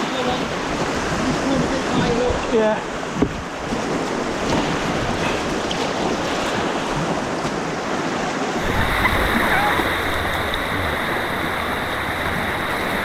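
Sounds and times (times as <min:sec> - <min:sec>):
white water rushing: 0:00.0 - 0:13.0
wind buffeting microphone: 0:08.6 - 0:13.0.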